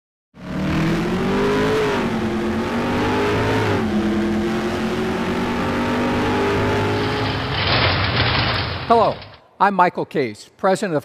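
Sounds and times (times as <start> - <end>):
car engine accelerating and shifting: 0.4 - 7.9.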